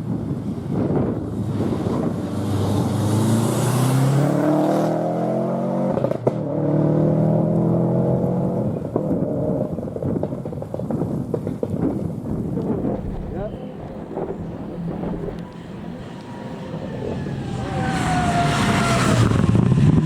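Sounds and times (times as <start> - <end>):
rally car accelerating hard: 0.4 - 11.4, 12.0 - 20.0.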